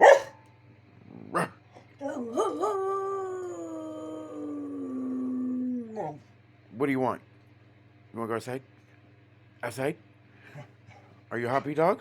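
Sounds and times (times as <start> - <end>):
dog howling: 2.0 - 6.2.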